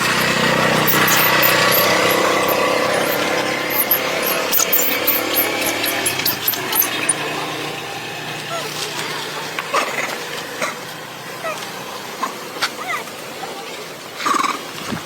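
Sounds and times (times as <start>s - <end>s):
short high-pitched chirps: 0.0s - 7.2s
motor humming: 0.0s - 7.5s.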